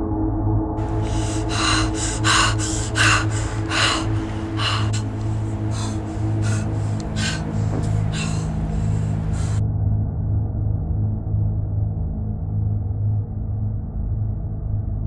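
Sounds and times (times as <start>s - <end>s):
woman gasping: 0.8s - 9.6s.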